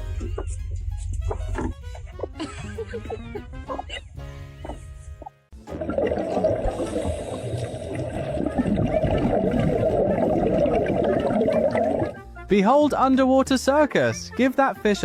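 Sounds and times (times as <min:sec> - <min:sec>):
water gurgling and bubbling: 0:05.6 - 0:12.2.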